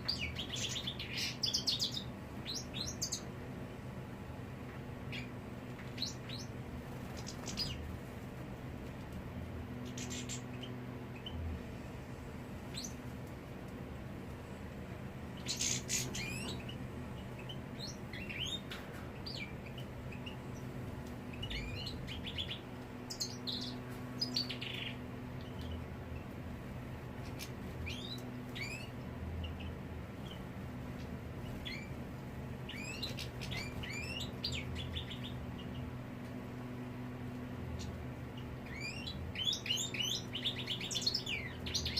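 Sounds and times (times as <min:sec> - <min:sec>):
finches chirping: 0:00.0 - 0:03.3, 0:05.1 - 0:07.9, 0:09.8 - 0:11.5, 0:12.7 - 0:13.1, 0:15.4 - 0:20.7, 0:21.3 - 0:26.3, 0:27.2 - 0:32.0, 0:32.6 - 0:36.0, 0:37.6 - 0:41.9
steady low hum: 0:00.0 - 0:41.9.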